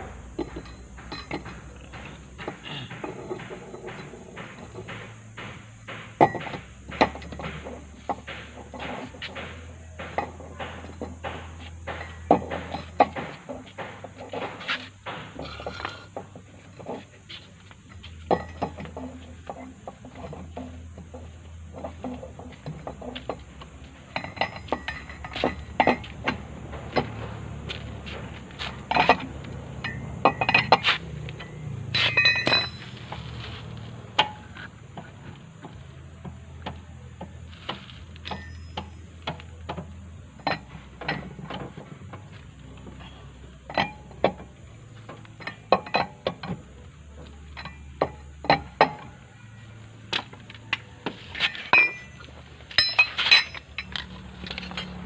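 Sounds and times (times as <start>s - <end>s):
low steady hum: 0.0s - 55.0s
hand tools clinking on metal: 0.4s - 4.9s, 24.1s - 27.2s, 28.7s - 33.4s, 38.1s - 39.8s, 51.4s - 55.0s.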